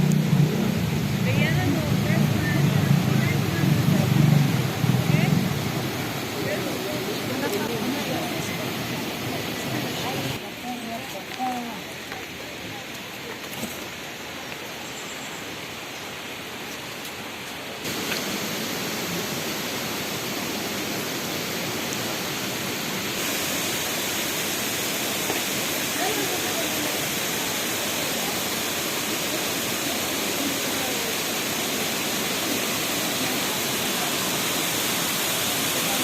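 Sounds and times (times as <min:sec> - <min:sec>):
waterfall rushing: 0:00.0 - 0:36.0
faint voices: 0:06.2 - 0:14.0.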